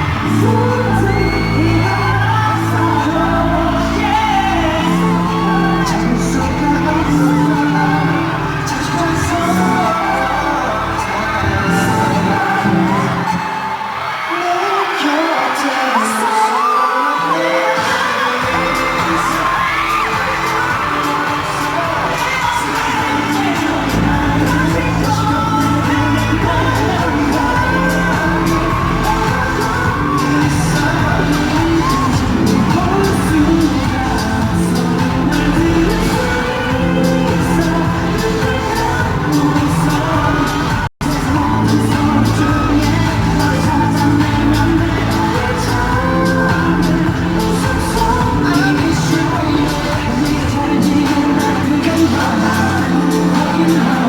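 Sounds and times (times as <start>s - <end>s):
fans screaming and whooping: 0.0s - 54.0s
pop concert music with singing: 0.0s - 54.0s
sung vocals over heavy bass: 0.0s - 54.0s.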